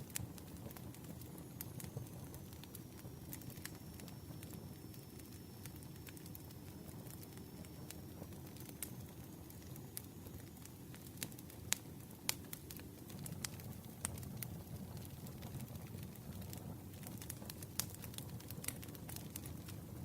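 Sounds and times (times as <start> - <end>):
campfire crackles and pops: 0.0 - 20.0
campfire rumbling: 0.0 - 20.0.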